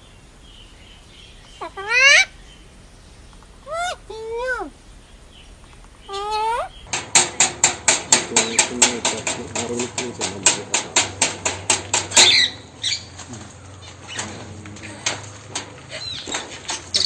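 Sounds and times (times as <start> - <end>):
rapid tapping on hard surface: 6.9 - 13.3, 14.2 - 17.0.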